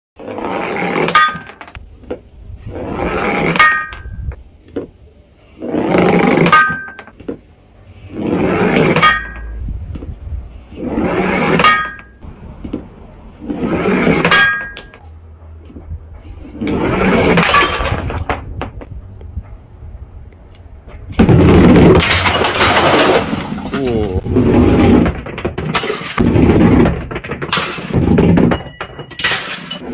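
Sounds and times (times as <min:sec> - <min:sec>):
glass bottles smashing: 0:17.4 - 0:18.3, 0:21.8 - 0:24.2, 0:25.6 - 0:26.3, 0:27.0 - 0:29.9.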